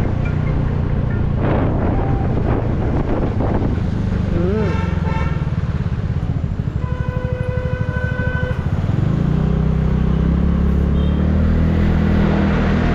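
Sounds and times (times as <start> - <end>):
vehicle horn: 4.5 - 5.6, 6.8 - 8.8, 10.8 - 11.4.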